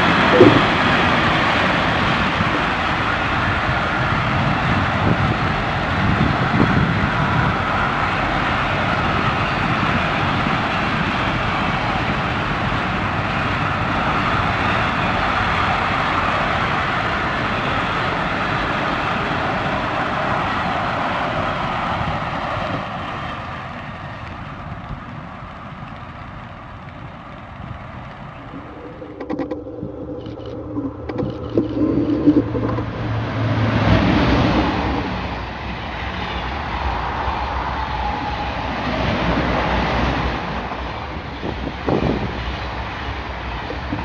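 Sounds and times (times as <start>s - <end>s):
low steady hum: 0.0s - 1.2s, 27.6s - 35.6s
train rushing past: 0.0s - 25.4s, 31.6s - 44.0s
sharp clicks: 28.5s - 33.0s.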